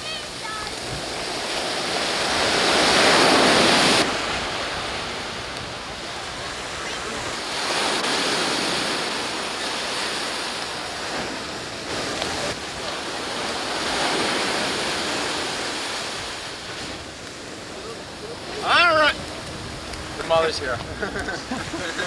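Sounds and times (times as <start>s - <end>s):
ocean surf breaking on beach: 0.0s - 22.0s.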